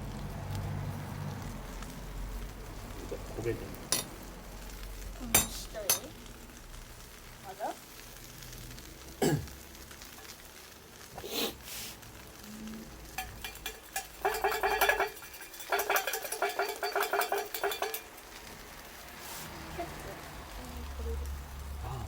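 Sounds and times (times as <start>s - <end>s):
metal utensil scraping pan: 5.3s - 6.1s, 13.0s - 19.6s.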